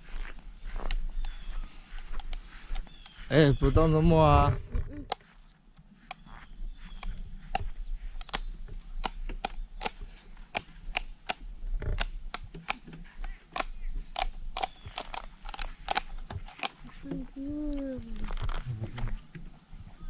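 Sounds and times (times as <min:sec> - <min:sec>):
crickets chirping: 0:00.0 - 0:20.0
sharp clicks: 0:06.9 - 0:16.9.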